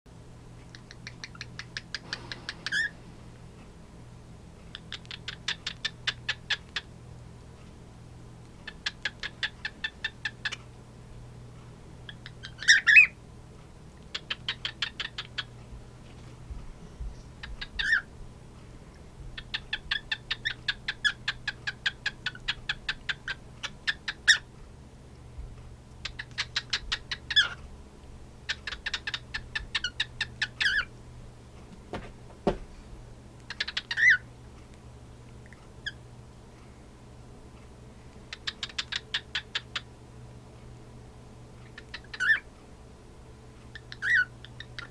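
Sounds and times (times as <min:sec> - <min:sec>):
cockatiels clicking: 0:00.6 - 0:02.9, 0:04.6 - 0:06.9, 0:08.4 - 0:10.7, 0:12.1 - 0:13.1, 0:14.0 - 0:15.6, 0:17.4 - 0:18.0, 0:19.4 - 0:24.4, 0:25.9 - 0:27.6, 0:28.5 - 0:30.9, 0:33.4 - 0:34.2, 0:38.2 - 0:39.9, 0:41.6 - 0:42.4, 0:43.6 - 0:44.9.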